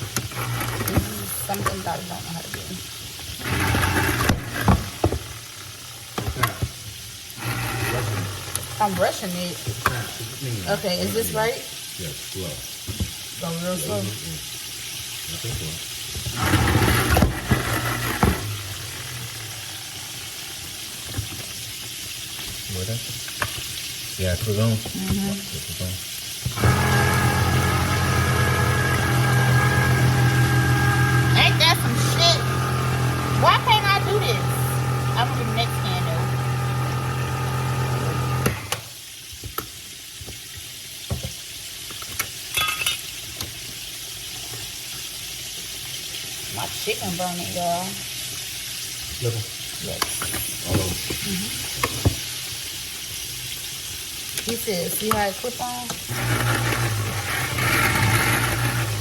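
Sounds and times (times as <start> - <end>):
chicken sizzling in oil: 0.0 - 3.6, 5.0 - 17.0, 17.8 - 56.4
can opener rattling and clicking: 7.4 - 9.2, 55.9 - 59.0.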